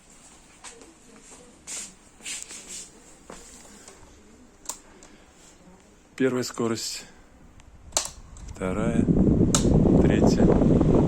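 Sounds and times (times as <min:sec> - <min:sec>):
sharp clicks: 0:07.9 - 0:08.6.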